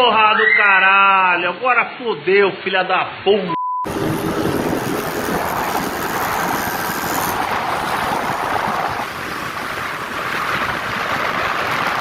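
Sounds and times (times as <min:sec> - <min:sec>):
wind and road rush: 0:03.9 - 0:12.0.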